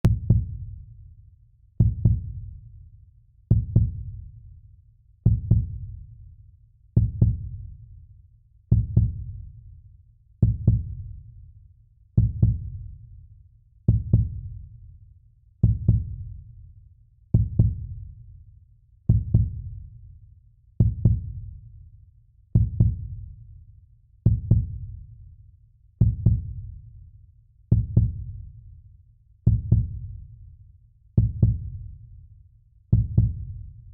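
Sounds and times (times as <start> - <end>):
heartbeat: 0.0 - 0.6, 1.8 - 2.4, 3.5 - 4.2, 5.3 - 5.9, 7.0 - 7.6, 8.7 - 9.3, 10.4 - 11.0, 12.2 - 12.8, 13.9 - 14.5, 15.6 - 16.2, 17.4 - 17.9, 19.1 - 19.7, 20.8 - 21.4, 22.6 - 23.2, 24.3 - 24.9, 26.0 - 26.7, 27.7 - 28.4, 29.5 - 30.2, 31.2 - 31.8, 33.0 - 33.9.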